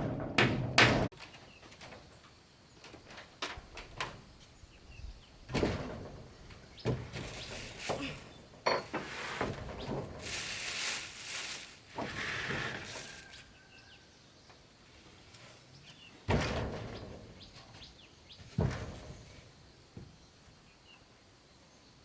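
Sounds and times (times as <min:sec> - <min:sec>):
rustling and scraping: 0:05.4 - 0:13.8.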